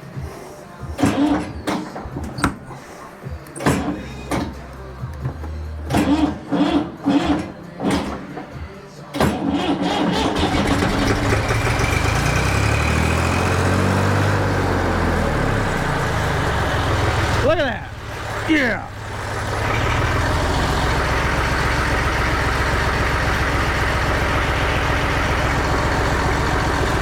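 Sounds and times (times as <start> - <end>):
clunks: 0.0 - 12.4
tractor engine cranking: 0.0 - 27.0
tractor engine running: 0.0 - 27.0.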